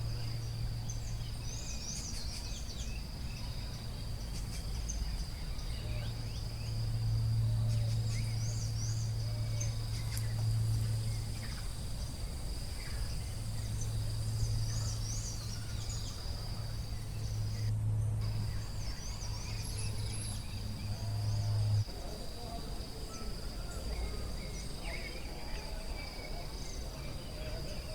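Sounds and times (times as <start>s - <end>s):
loud low hum: 5.4s - 27.9s
bird chirps: 7.5s - 21.8s.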